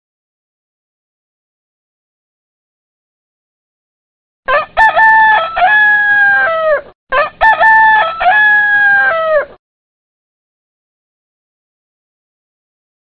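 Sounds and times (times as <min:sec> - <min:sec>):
rooster crowing: 0:04.5 - 0:09.6.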